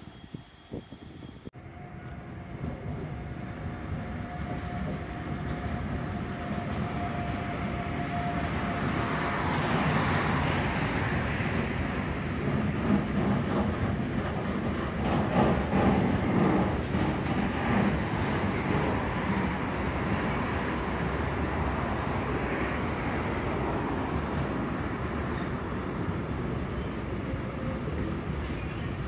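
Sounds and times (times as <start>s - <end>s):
freight train rumbling and rattling: 0.0s - 29.0s
wheels clattering over rail joints: 12.4s - 19.3s.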